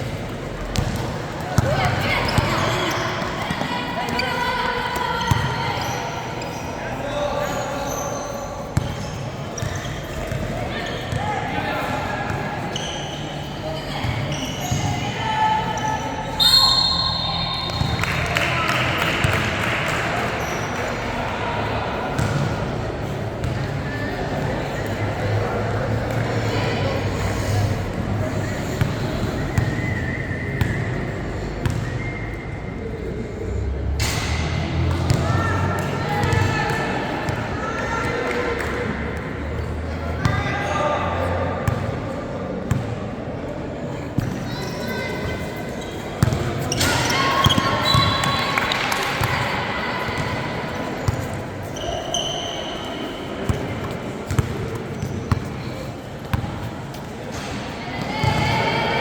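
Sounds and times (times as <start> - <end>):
crowd chatter: 0.0 - 59.0
basketball bouncing on gym floor: 0.7 - 2.6
shoe squeak: 5.2 - 11.2, 12.6 - 15.1, 15.7 - 18.0, 44.5 - 48.8, 50.9 - 53.2.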